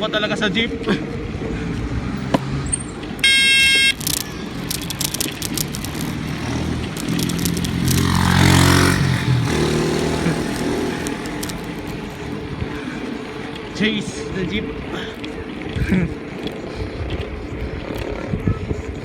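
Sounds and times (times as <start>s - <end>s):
wind and road noise: 0.0s - 19.0s
vehicle engine passing: 1.3s - 12.6s
horn honking: 3.2s - 4.4s.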